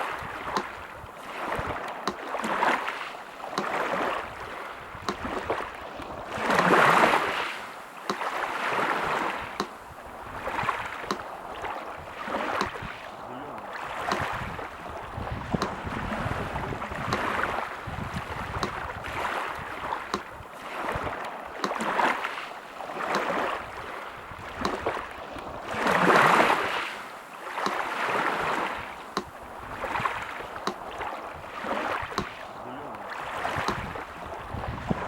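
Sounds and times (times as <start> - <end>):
sea surf washing: 0.0 - 35.0
metronome ticking: 9.6 - 9.8, 18.6 - 18.8.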